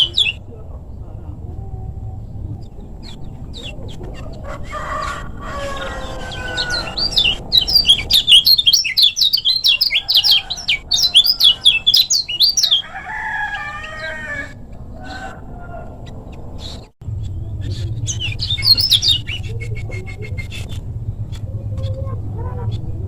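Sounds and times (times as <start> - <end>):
bird chattering high chirps: 0.0 - 0.4, 5.6 - 13.0, 16.6 - 22.0
chickens clucking: 0.0 - 23.0.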